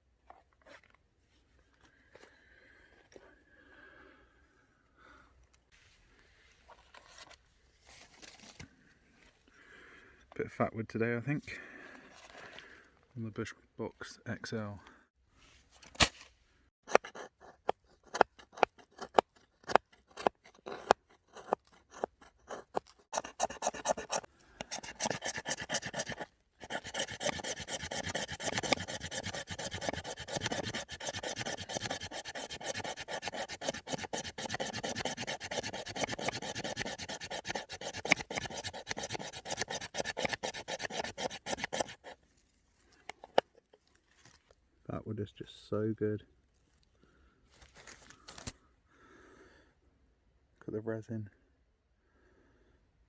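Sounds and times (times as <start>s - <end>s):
knife scraping and shaving wood: 16.9s - 44.4s.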